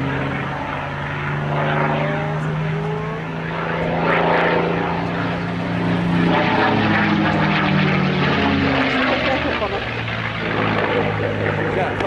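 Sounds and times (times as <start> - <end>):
propeller plane engine flying by: 0.0 - 12.0.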